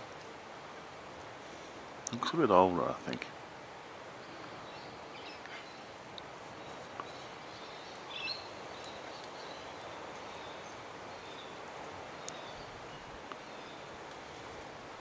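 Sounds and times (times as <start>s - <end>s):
outdoor background hiss: 0.0s - 15.0s
faint ticks: 5.4s - 8.1s, 8.8s - 10.4s, 12.2s - 12.6s.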